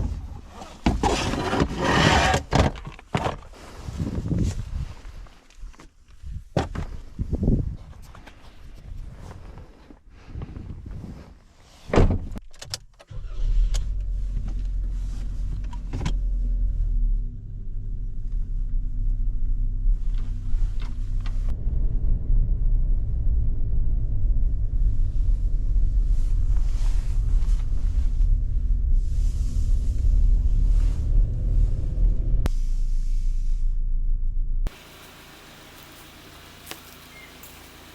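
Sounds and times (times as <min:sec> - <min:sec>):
car engine starting and droning: 0:13.1 - 0:37.9.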